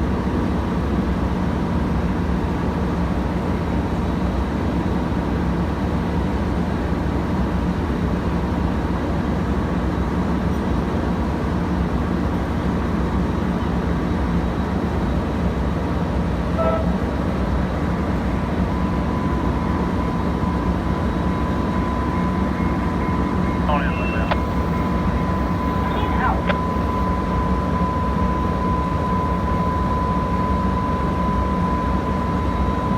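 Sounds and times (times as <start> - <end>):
short tone: 16.5 - 17.0, 21.4 - 28.4
engine rumble: 17.7 - 29.8.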